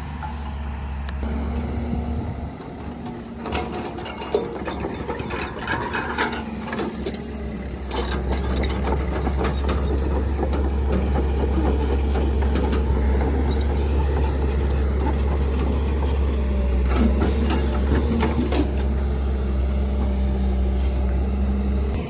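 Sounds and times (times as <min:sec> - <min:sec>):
diesel engine rumbling: 0:00.0 - 0:22.0.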